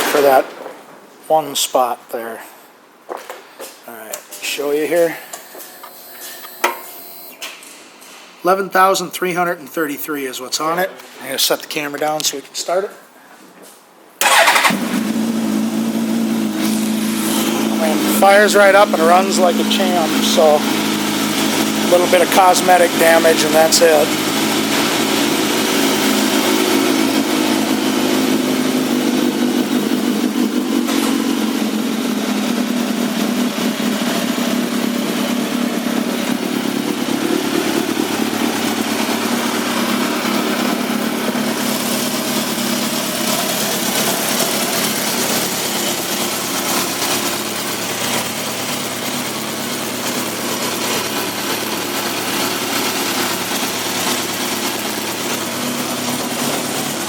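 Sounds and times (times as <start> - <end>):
motorcycle engine idling: 14.2 - 57.0.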